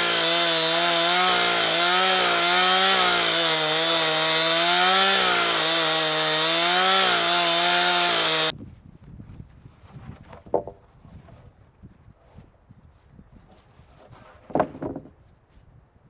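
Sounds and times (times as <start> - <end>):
chainsaw cutting log: 0.0 - 8.5.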